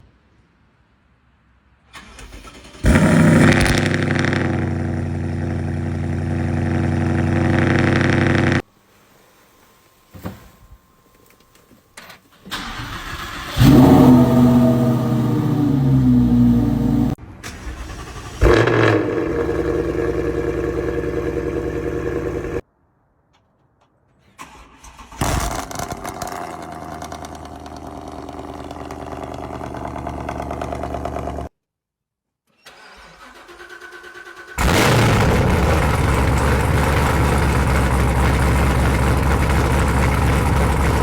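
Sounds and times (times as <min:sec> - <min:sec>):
car engine revving and idling: 0:02.9 - 0:08.6, 0:13.3 - 0:17.2, 0:18.1 - 0:22.6, 0:25.5 - 0:31.5, 0:34.6 - 0:41.0.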